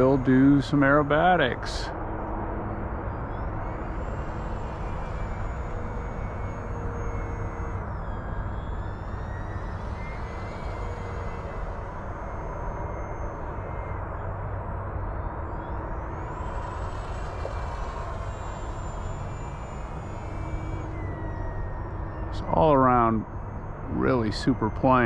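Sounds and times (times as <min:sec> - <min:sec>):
model plane motor whine: 0:00.0 - 0:25.0.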